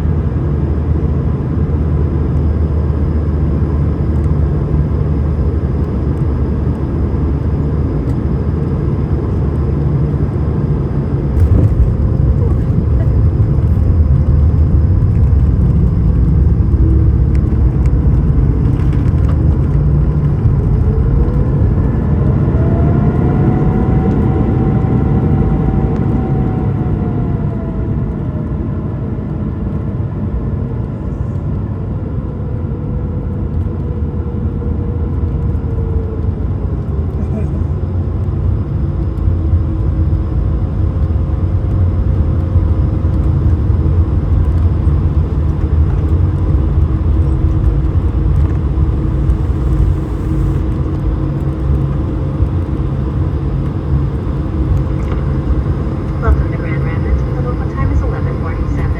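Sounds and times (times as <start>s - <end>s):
jet engine cabin rumble: 0.0s - 58.9s
thin rising whine: 2.4s - 28.8s.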